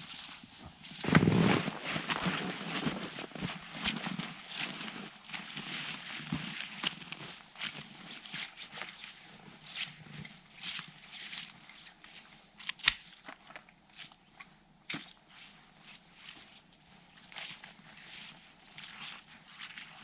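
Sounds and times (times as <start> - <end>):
footsteps crunching in snow: 1.0 - 8.3.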